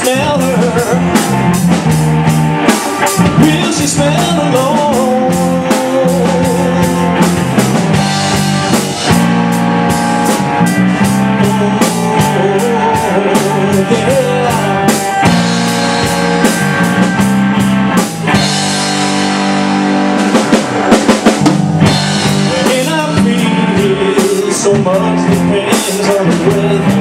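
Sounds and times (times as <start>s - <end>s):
rock band playing: 0.0s - 27.0s
drum hits: 13.4s - 27.0s.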